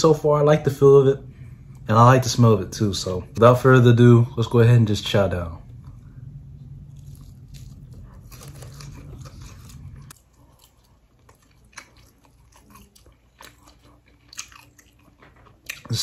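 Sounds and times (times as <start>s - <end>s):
low hum: 0.0s - 15.9s
chewing with crunches: 6.7s - 16.0s.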